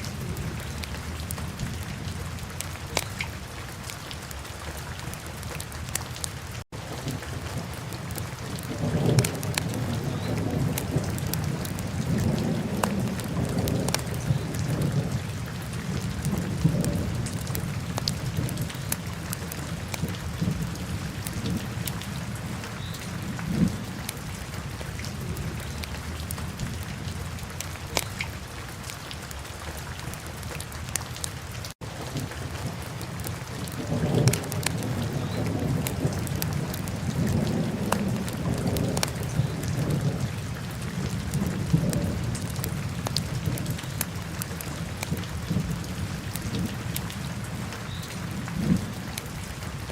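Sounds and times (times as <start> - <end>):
wood fire crackling and popping: 33.2 - 34.9.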